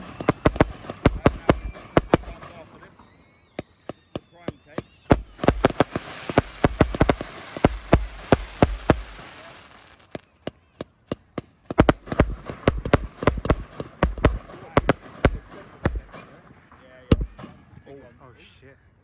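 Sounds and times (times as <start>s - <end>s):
fireworks bangs: 0.0s - 2.5s, 5.1s - 10.3s, 11.8s - 16.2s
fireworks hissing crackle: 5.1s - 10.3s.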